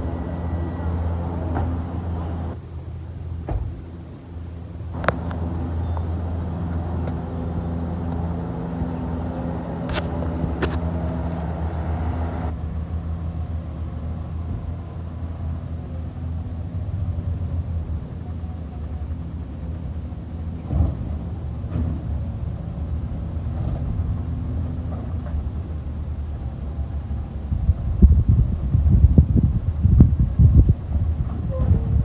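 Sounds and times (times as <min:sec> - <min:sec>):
faint rising whine: 0:00.0 - 0:02.6, 0:05.0 - 0:12.6
garbage truck engine running: 0:00.0 - 0:02.6, 0:05.0 - 0:12.6.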